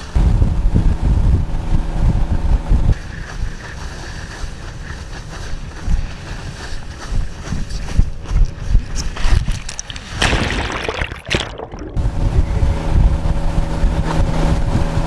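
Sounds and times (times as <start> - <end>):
wind buffeting microphone: 0.0 - 3.0, 12.0 - 15.0
motorboat engine running: 0.0 - 6.7, 12.0 - 15.0.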